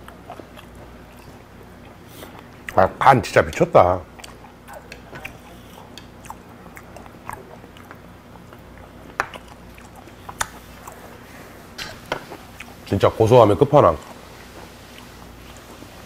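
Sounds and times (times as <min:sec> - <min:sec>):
person chewing wet mouth clicks: 0:04.1 - 0:11.0.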